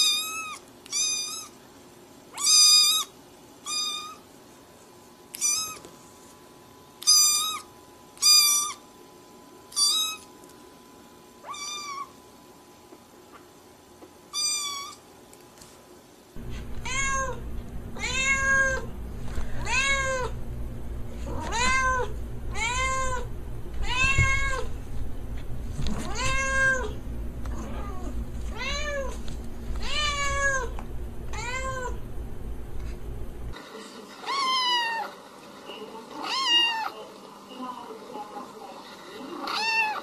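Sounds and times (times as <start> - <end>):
cat meowing: 0.0 - 1.5, 2.4 - 4.2, 11.4 - 12.1, 16.8 - 18.9, 19.6 - 20.4, 21.3 - 24.7, 26.0 - 29.2, 29.8 - 32.0, 36.2 - 36.9, 39.4 - 40.0
low steady hum: 16.4 - 33.6.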